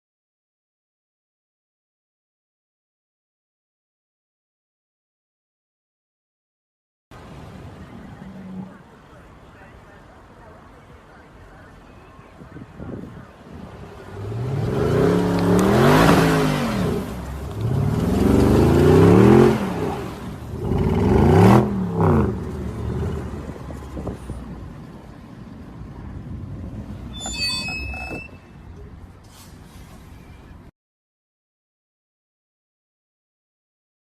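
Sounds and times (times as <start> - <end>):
vehicles passing close by: 7.1 - 27.3, 27.9 - 30.7
steady traffic rumble: 7.1 - 30.7.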